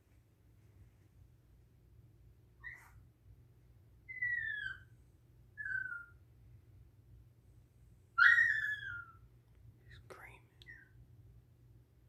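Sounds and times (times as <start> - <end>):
dog yelp: 2.6 - 3.0, 4.1 - 4.9, 5.6 - 6.2, 8.2 - 9.2
small dog whining: 2.6 - 3.0, 4.1 - 4.9, 5.6 - 6.2, 8.2 - 9.2.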